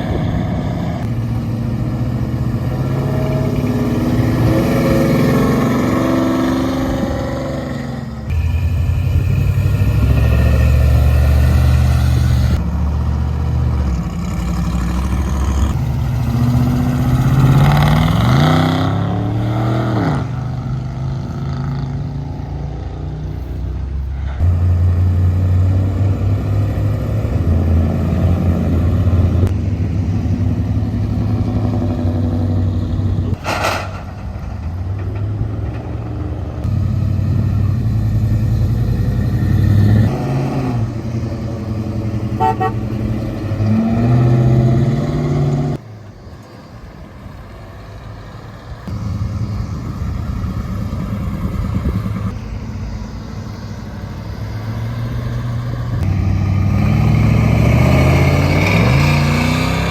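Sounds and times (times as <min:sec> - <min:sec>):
engine revving: 0:00.0 - 0:23.3, 0:24.1 - 0:45.8, 0:48.8 - 0:59.9
car engines rumbling: 0:00.0 - 0:59.9
sharp crack: 0:33.3 - 0:35.9.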